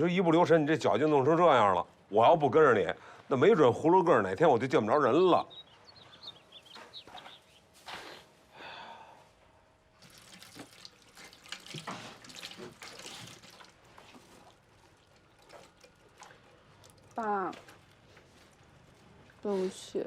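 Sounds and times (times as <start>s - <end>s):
faint running water: 9.8s - 20.0s
water drips: 9.9s - 19.5s.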